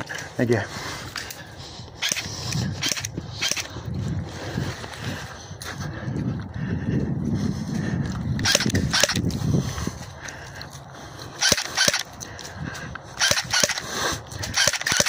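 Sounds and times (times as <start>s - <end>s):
airsoft guns firing: 11.4s - 12.1s, 13.2s - 15.0s.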